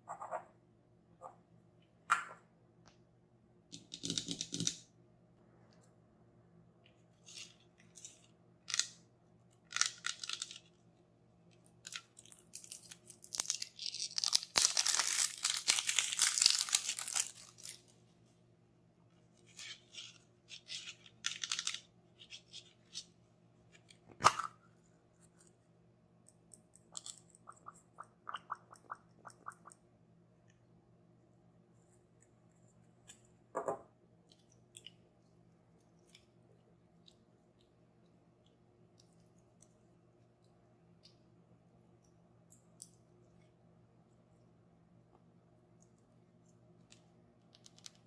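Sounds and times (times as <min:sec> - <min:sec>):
packaging tearing and crunching: 0:13.2 - 0:17.8
packaging crinkling and rustling: 0:13.3 - 0:17.9.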